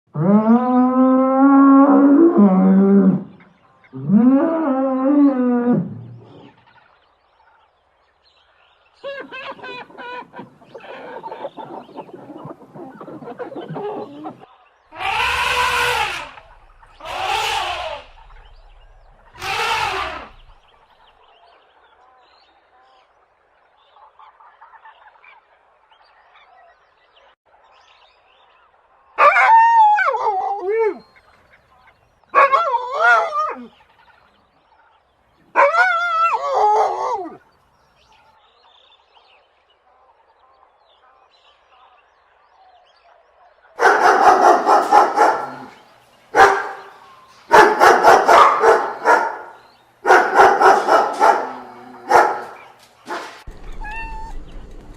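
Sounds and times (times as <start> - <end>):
wavering animal calls: 9.0 - 20.6, 43.8 - 54.5
dog barking: 43.8 - 53.4.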